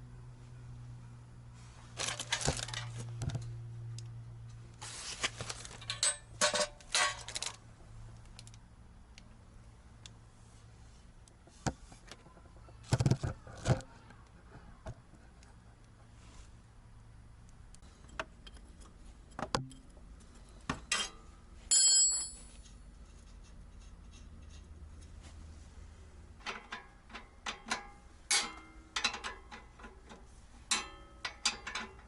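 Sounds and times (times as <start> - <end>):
low steady hum: 0.0 - 32.0
metal clinking and rattling: 5.5 - 7.6.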